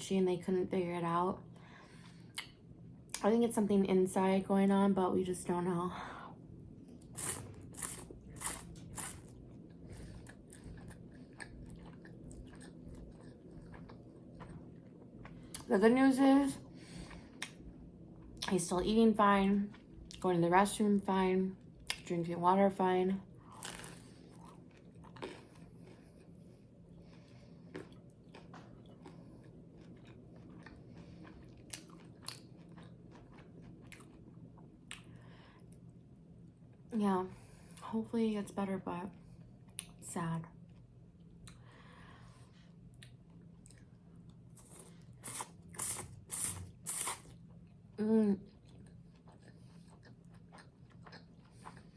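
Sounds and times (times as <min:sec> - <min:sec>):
soft chewing: 0:06.7 - 0:15.7, 0:16.7 - 0:18.6, 0:23.4 - 0:37.9, 0:39.1 - 0:51.9.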